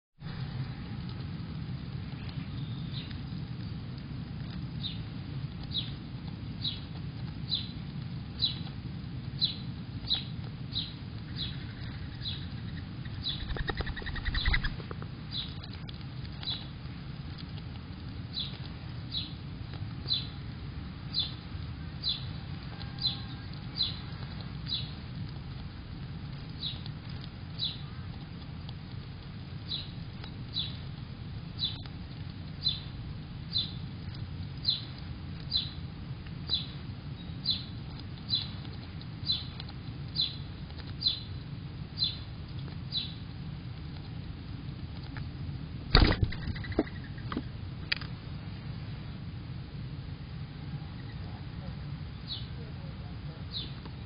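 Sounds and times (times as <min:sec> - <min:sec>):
steady low rumble: 0:00.2 - 0:54.0
bird chip calls: 0:09.4 - 0:15.7, 0:46.0 - 0:47.4
fluttering clatter: 0:13.2 - 0:15.0.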